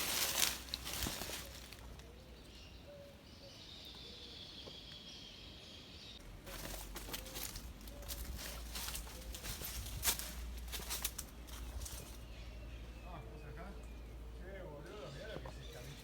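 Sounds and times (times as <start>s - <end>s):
rustling and shuffling: 0.0s - 2.2s, 6.2s - 12.4s
faint bird calls: 0.0s - 9.9s.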